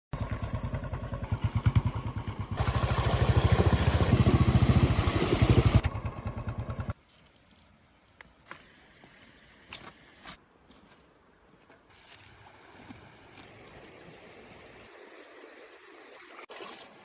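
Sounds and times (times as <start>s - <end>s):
engine running with rapid pulse: 0.1s - 7.0s.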